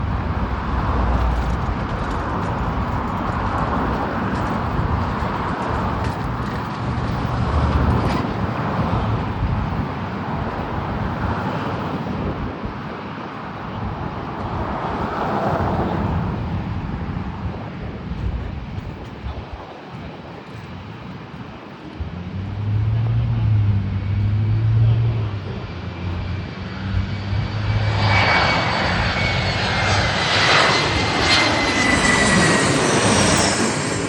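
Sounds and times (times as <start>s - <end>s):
jet engine roar: 0.0s - 34.0s.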